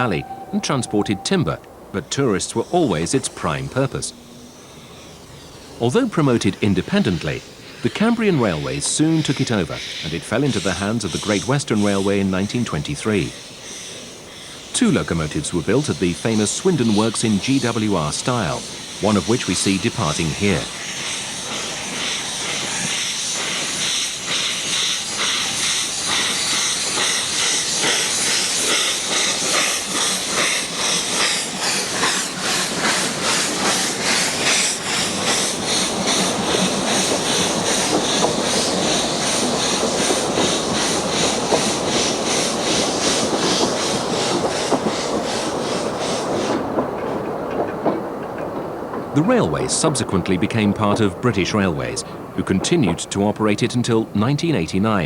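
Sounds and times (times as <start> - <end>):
steam hissing: 0.0 - 55.0
steam locomotive exhaust beats: 0.0 - 55.0.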